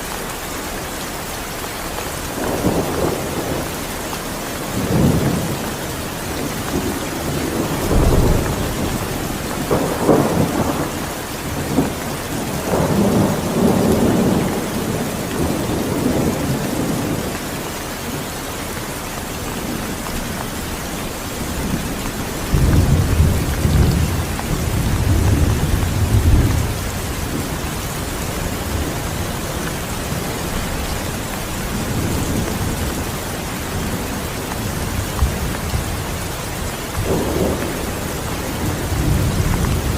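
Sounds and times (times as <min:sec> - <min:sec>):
heavy rain: 0:00.0 - 0:39.9
rolling thunder: 0:06.2 - 0:17.6, 0:19.6 - 0:39.9.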